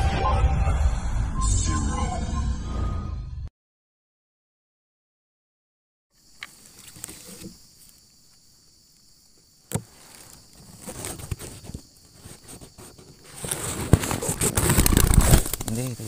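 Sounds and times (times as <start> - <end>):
insects chirring: 6.1 - 16.0
rustling: 6.4 - 8.2, 9.7 - 16.0.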